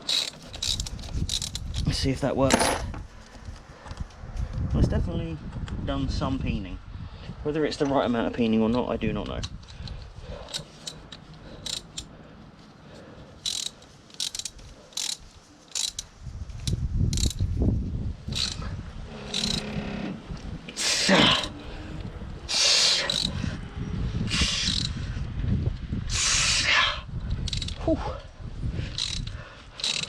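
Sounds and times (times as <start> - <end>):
sharp metallic clicks: 0.0 - 1.9, 8.7 - 12.1, 13.4 - 17.4, 18.3 - 18.6, 19.3 - 19.8, 22.5 - 23.4, 24.5 - 25.0, 27.3 - 27.8, 28.9 - 30.0
metal scraping and grinding: 0.0 - 2.0, 18.3 - 21.8.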